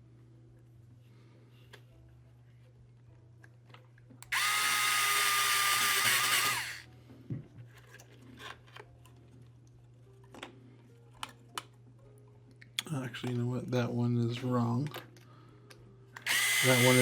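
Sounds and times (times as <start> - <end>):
electric screwdriver running: 4.2 - 6.8, 16.2 - 17.0.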